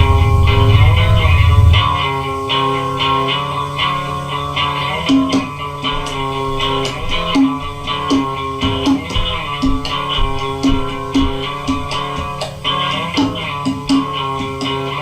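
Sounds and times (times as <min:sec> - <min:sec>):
bass guitar: 0:00.0 - 0:02.6
electric guitar: 0:00.0 - 0:15.0.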